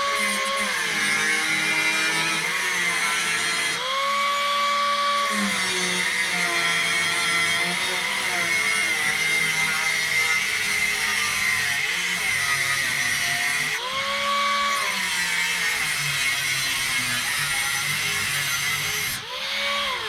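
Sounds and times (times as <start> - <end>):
electric power tool running: 0.0 - 20.0.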